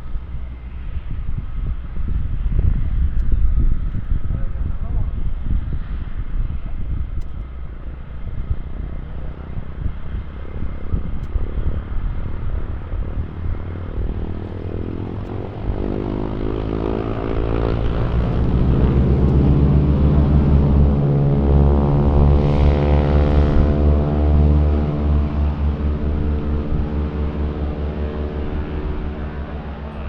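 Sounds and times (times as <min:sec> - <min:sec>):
airplane engine rumble: 0:00.0 - 0:30.0
droning engine tones: 0:00.0 - 0:30.0.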